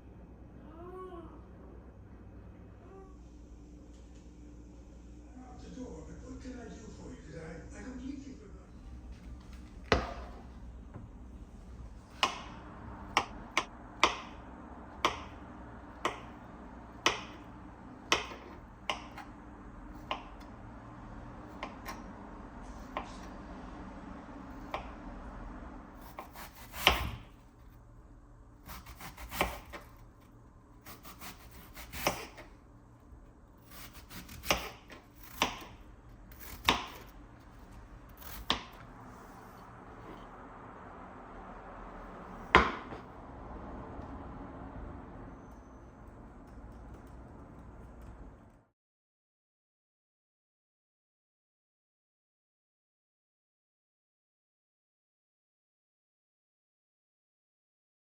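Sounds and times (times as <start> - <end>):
knife chopping on cutting board: 9.9 - 10.5, 12.1 - 14.4, 15.0 - 15.4, 17.0 - 17.4, 18.1 - 19.3, 26.0 - 27.3, 28.7 - 30.0, 30.8 - 32.5, 33.7 - 37.1, 38.2 - 38.9, 42.5 - 43.0.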